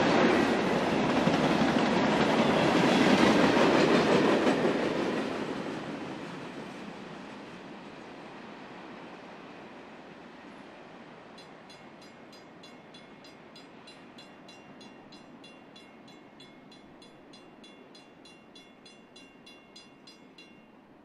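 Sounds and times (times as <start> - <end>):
freight train rumbling: 0.0 - 21.0
high-pitched ticking ring: 11.4 - 20.9.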